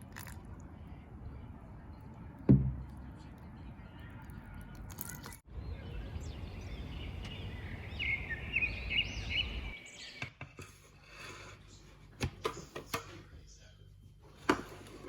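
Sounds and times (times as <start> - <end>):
bird chirping: 5.5 - 10.4.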